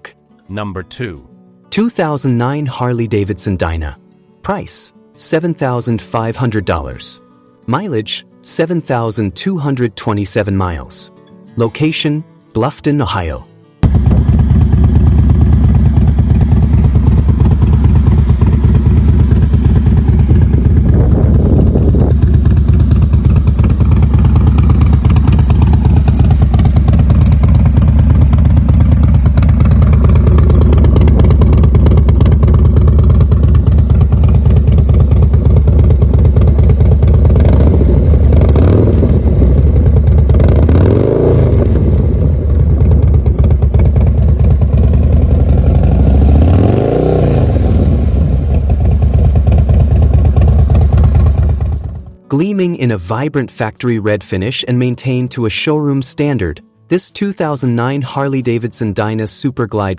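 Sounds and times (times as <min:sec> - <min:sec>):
motorcycle engine running: 0:13.8 - 0:52.2.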